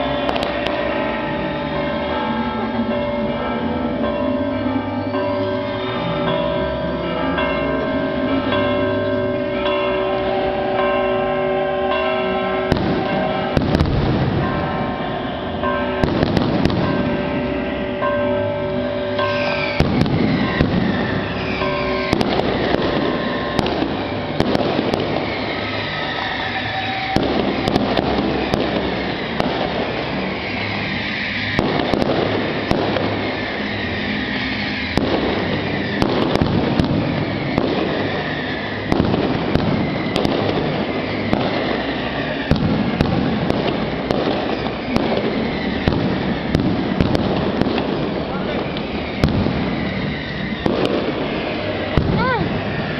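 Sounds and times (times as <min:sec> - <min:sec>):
whistling firework shells: 0:00.0 - 0:00.8, 0:12.6 - 0:17.8, 0:19.0 - 0:52.9
fireworks crackling and popping: 0:00.0 - 0:03.0, 0:11.9 - 0:52.9.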